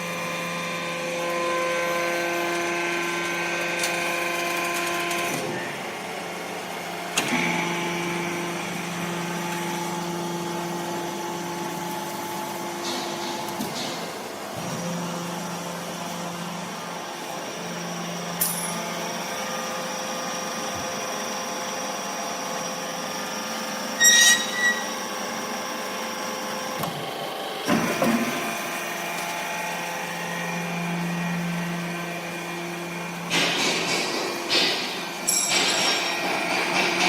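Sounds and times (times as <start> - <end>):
hydraulic hum and whine: 0.0 - 37.0
metallic clanks and squeals: 24.0 - 25.1.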